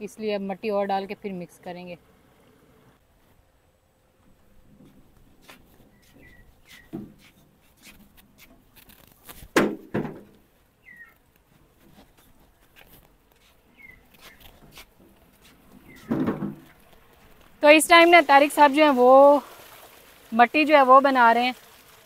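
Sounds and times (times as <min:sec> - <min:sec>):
birds chirping: 0:05.8 - 0:07.1, 0:10.7 - 0:11.3, 0:13.6 - 0:16.9
sharp thumps: 0:14.0 - 0:17.0.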